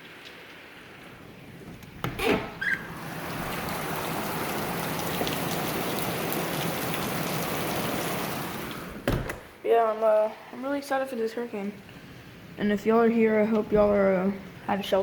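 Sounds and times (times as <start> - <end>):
heavy rain pouring: 2.7 - 9.0.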